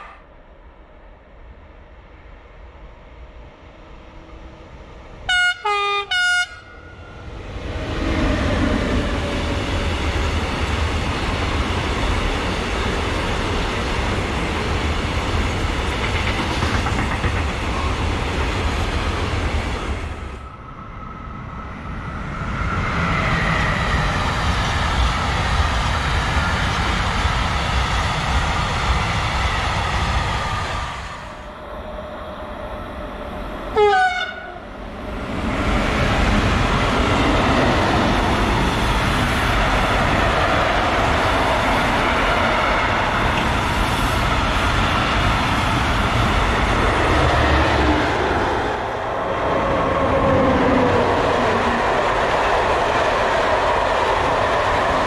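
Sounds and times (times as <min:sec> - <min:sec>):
train passing rumble: 0:00.0 - 0:55.0
train horn blasts: 0:05.3 - 0:07.1, 0:33.8 - 0:34.6.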